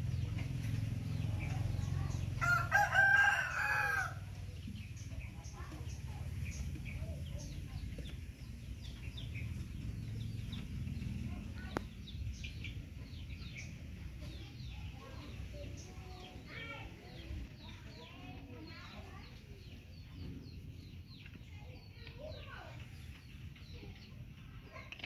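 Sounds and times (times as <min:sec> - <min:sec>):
low steady rumble: 0:00.0 - 0:18.2
birds chirping: 0:00.0 - 0:25.0.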